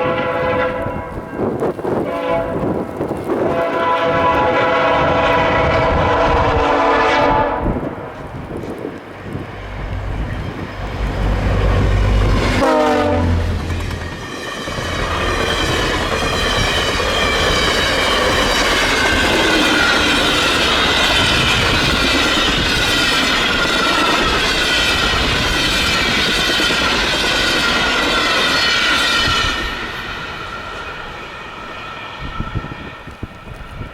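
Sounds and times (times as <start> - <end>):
train wheels clattering on rails: 7.6 - 33.9.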